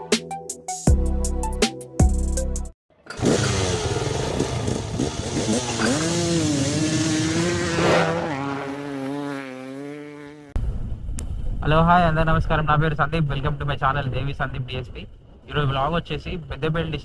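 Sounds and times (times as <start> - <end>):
motorcycle engine revving: 2.9 - 10.6.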